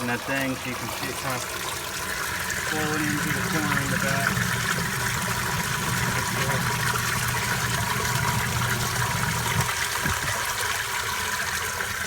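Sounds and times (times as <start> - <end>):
low hum: 2.6 - 10.2.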